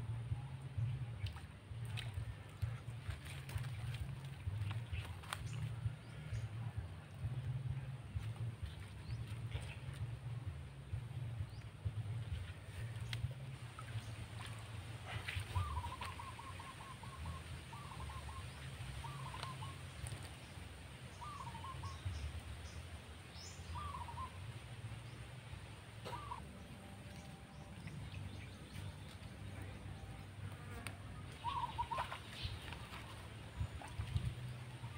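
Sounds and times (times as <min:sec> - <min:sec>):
steady low rumble: 0:00.0 - 0:34.9
bird warbling calls: 0:13.8 - 0:22.3, 0:23.4 - 0:24.4, 0:26.0 - 0:29.8, 0:30.6 - 0:34.9.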